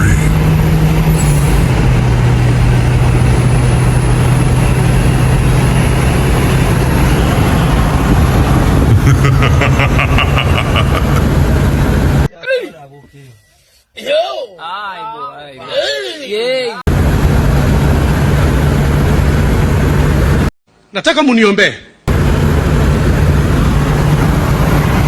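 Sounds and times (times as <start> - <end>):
car engine humming: 0.0 - 12.3, 16.9 - 20.5, 22.1 - 25.0
road and wind noise: 0.0 - 12.3, 16.9 - 20.9, 22.1 - 25.0.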